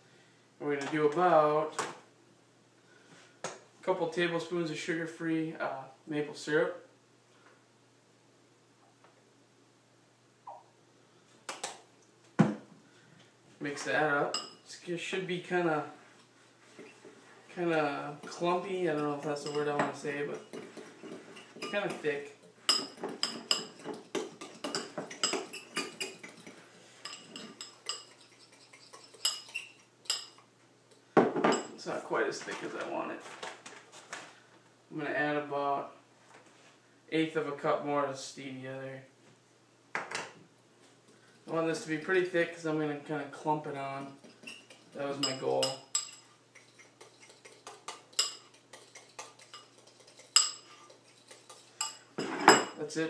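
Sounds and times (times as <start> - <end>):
utensil clinking against bowl: 18.2 - 30.4, 44.1 - 52.8.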